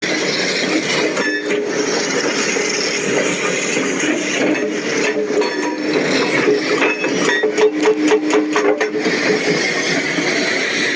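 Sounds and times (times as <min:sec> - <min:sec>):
bulldozer engine clattering: 0:00.2 - 0:10.8.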